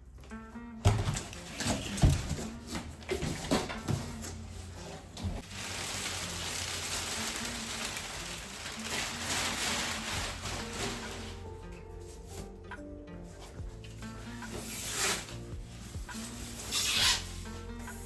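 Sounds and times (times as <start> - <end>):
packaging crackling rustle: 5.4 - 11.5.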